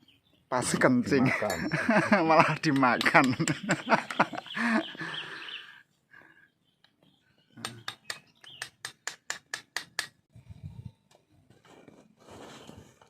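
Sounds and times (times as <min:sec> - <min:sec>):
person speaking: 0:00.5 - 0:05.1.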